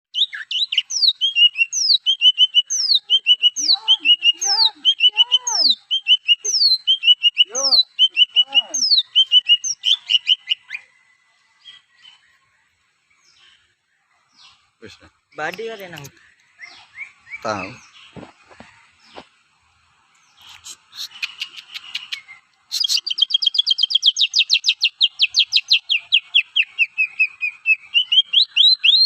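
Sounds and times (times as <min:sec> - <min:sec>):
bird whistling and trilling: 0:00.1 - 0:10.9, 0:20.4 - 0:29.0
faint lower bird calls: 0:00.1 - 0:19.4, 0:20.1 - 0:29.0.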